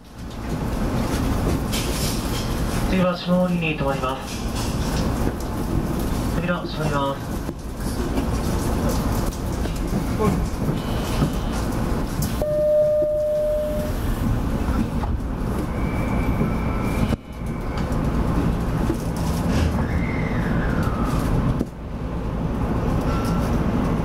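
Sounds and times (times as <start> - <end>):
train cab rumble and hum: 0.0 - 24.0
short beep: 12.4 - 14.0
high steady tone: 12.4 - 14.1.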